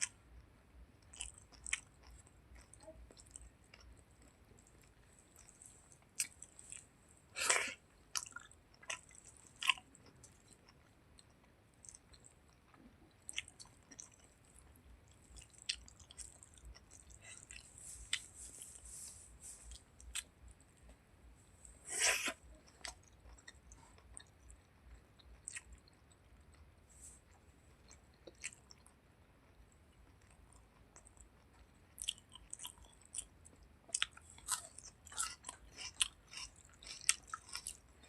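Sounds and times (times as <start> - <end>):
person chewing food: 1.0 - 38.0.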